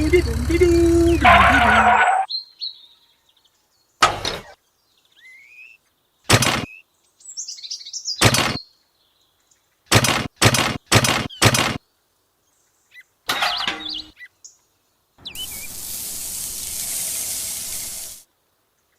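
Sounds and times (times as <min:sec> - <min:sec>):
small birds chirping: 0:00.0 - 0:18.9
sharp knocks: 0:06.3 - 0:06.7, 0:08.2 - 0:08.6, 0:09.9 - 0:11.8.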